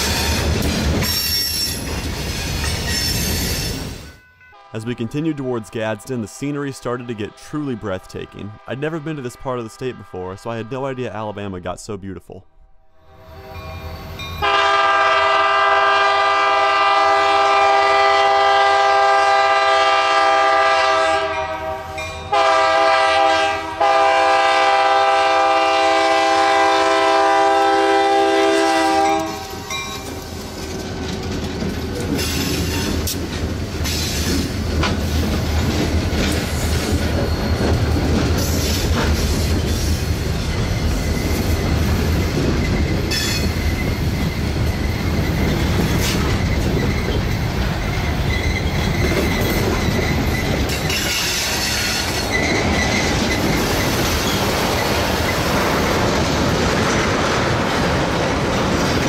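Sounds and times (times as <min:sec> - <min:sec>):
train engine rumble: 0:00.0 - 0:12.0, 0:13.0 - 0:59.0
diesel locomotive air horn: 0:04.5 - 0:11.5, 0:14.4 - 0:30.3
wheels clacking over rail joints: 0:29.1 - 0:59.0.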